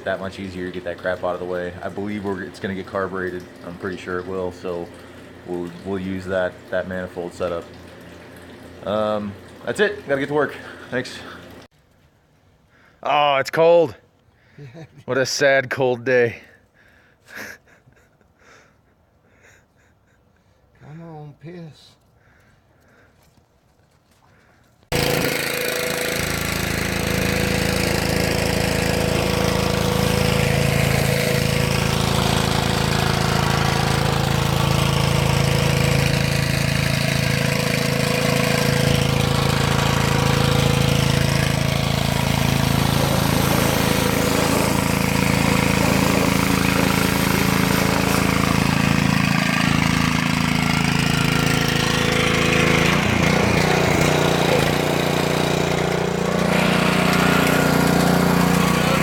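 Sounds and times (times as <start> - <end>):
small engine running: 0.0 - 11.7, 24.4 - 59.0.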